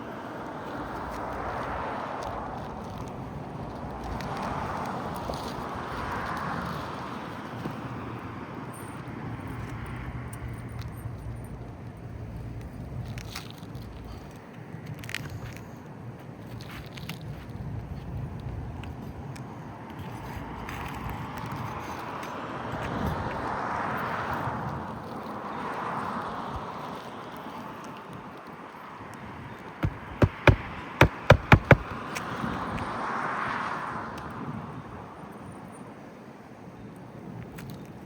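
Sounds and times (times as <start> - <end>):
hammer striking nails: 29.8 - 31.9.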